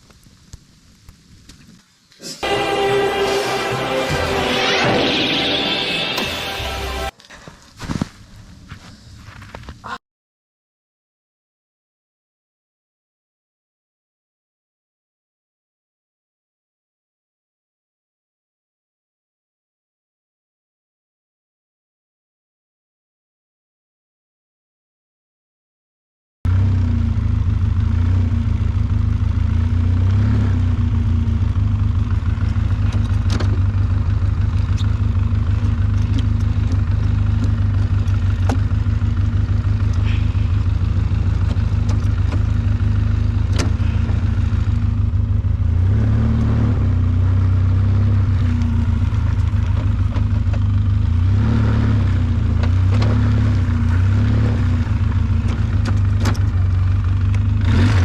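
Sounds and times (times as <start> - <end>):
engine running with fast pulsing: 26.5 - 58.0.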